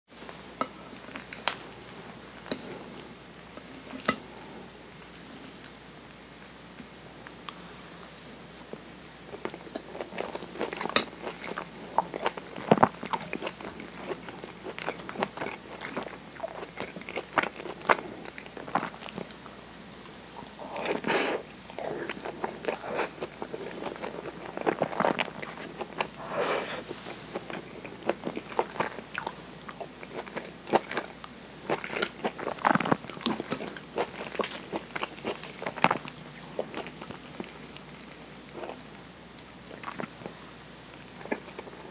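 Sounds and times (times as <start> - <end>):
person chewing food: 9.3 - 41.9.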